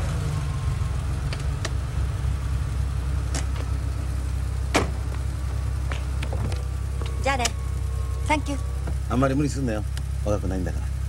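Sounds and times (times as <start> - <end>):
car engine idling: 0.0 - 11.0
car door shutting: 4.7 - 9.2.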